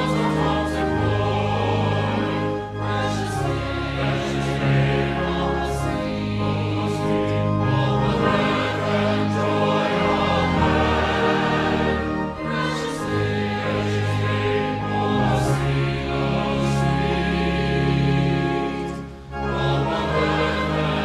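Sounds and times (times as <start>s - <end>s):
choir singing sacred music: 0.0s - 21.0s.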